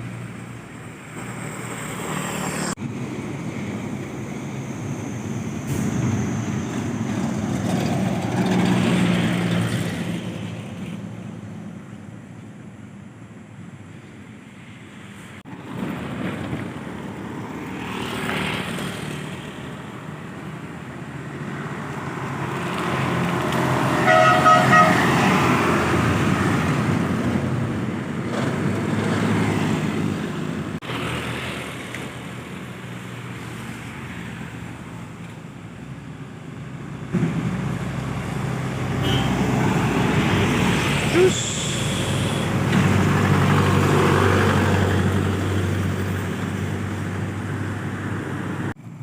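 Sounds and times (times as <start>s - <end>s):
vehicles passing: 0.0s - 49.0s
vehicle horn: 23.9s - 25.4s, 39.0s - 39.5s.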